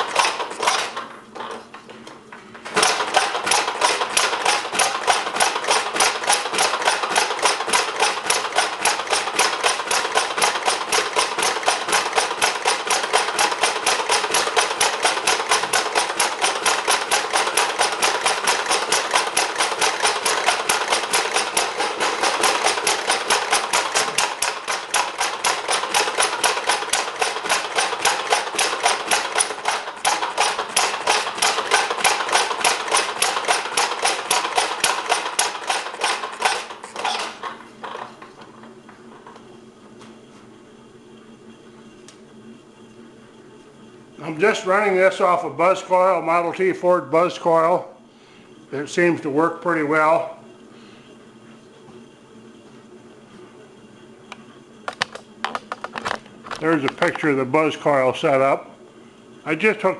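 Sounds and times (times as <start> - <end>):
single-cylinder engine popping: 0.0 - 2.0, 2.7 - 39.5, 54.9 - 57.4.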